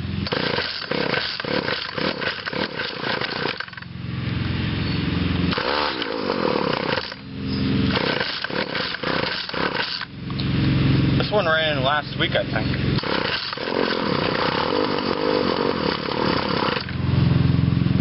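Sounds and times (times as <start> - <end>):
string trimmer engine sputtering: 0.0 - 4.0, 4.7 - 18.0
starter cord pulls: 0.2 - 3.9, 5.5 - 7.2, 7.9 - 10.5, 12.7 - 17.0.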